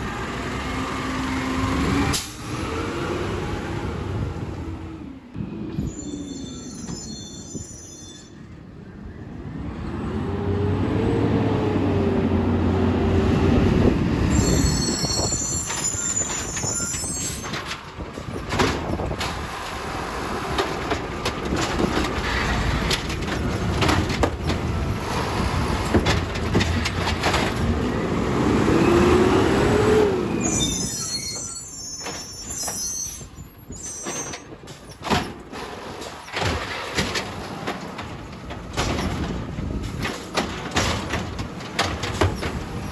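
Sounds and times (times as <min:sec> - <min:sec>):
garbage truck engine and hydraulics: 0:00.0 - 0:42.9
high metallic squeals: 0:05.8 - 0:08.6, 0:14.3 - 0:17.6, 0:30.3 - 0:34.5
bin clattering into hopper: 0:35.0 - 0:42.8.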